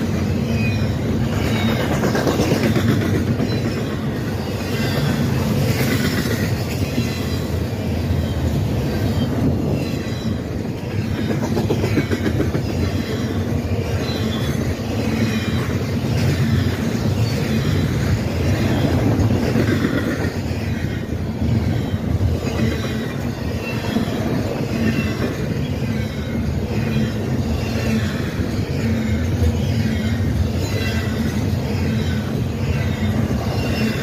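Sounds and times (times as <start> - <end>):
train cars rumbling past: 0.0 - 34.0
wheels squealing: 0.0 - 34.0.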